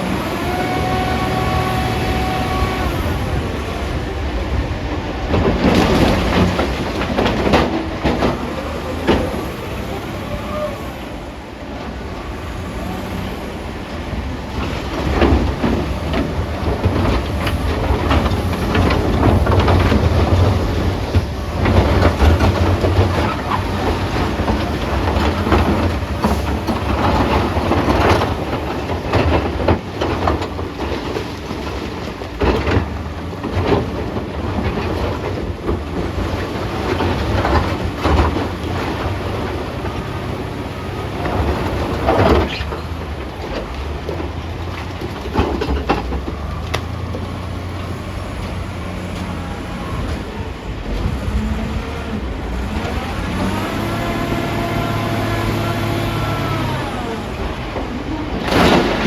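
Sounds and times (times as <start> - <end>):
diesel loader engine under load: 0.0 - 59.0.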